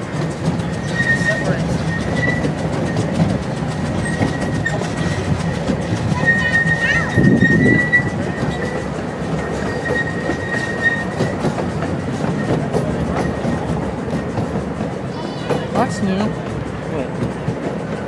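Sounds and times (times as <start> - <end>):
train rolling rumble: 0.0 - 18.0
high wheel squeal: 0.6 - 14.4.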